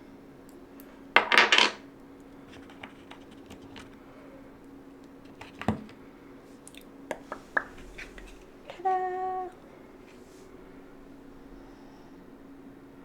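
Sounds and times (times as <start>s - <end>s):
steady low hum: 0.0s - 13.0s
wooden pieces tapping and clicking: 1.2s - 1.8s.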